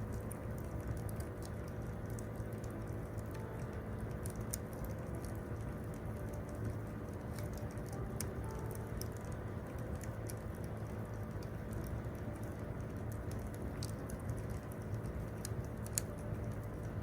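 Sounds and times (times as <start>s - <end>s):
campfire wood crackling: 0.0s - 17.0s.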